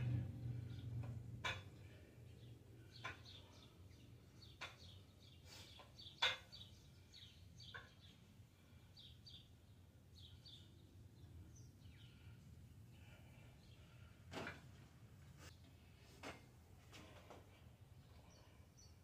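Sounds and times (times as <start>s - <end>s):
steady low hum: 0.0s - 5.4s
birds chirping: 0.0s - 14.2s.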